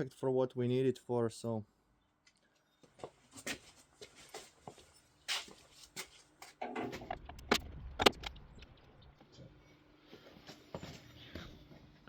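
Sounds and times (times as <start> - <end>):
low rumble: 6.9 - 9.2.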